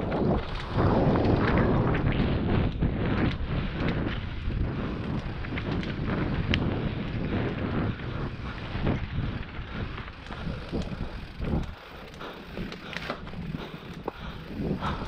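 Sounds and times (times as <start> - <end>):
bike rattles: 0.0 - 15.0
wind rushing over microphone: 0.0 - 15.0.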